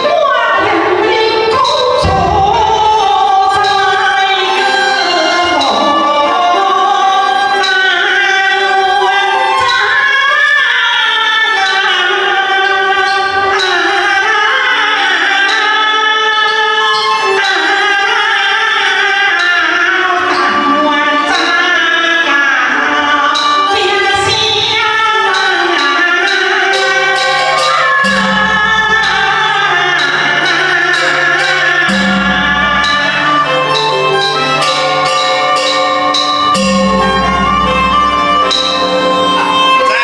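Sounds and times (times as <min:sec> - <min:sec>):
opera singing: 0:00.0 - 0:15.9
percussion strokes: 0:00.0 - 0:40.0
traditional instrumental ensemble: 0:00.0 - 0:40.0.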